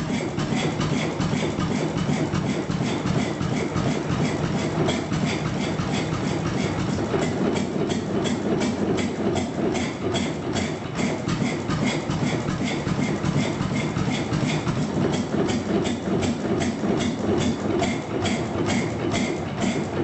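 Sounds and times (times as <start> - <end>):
stationary petrol engine running: 0.0 - 20.0.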